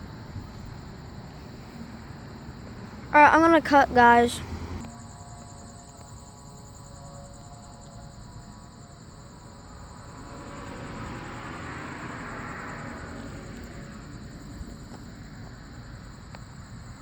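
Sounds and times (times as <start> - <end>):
crickets chirping: 0.0 - 17.0
distant vehicle rushing: 10.1 - 15.3.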